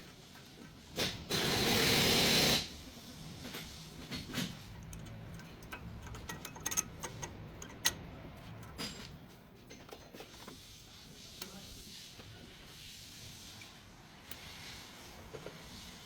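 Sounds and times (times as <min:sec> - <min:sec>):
metallic clicks of tools: 0:04.2 - 0:09.2.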